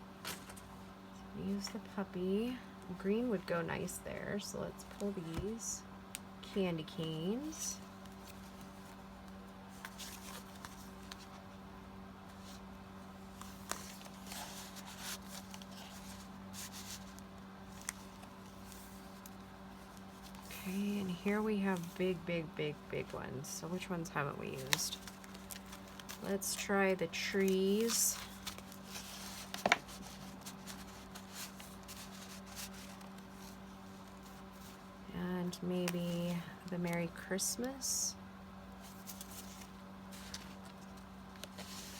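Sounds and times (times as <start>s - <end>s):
steady low hum: 0.0s - 41.9s
paper rustling and sliding: 9.7s - 11.4s, 13.3s - 20.8s, 24.6s - 34.9s, 38.8s - 41.9s.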